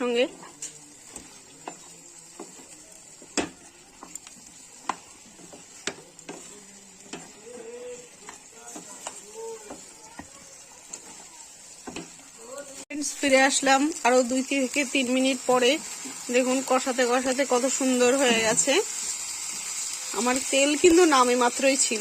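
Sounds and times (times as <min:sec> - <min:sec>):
faint steady sizzle: 0:00.0 - 0:22.0
spatula knocking and scraping pan: 0:00.3 - 0:12.3.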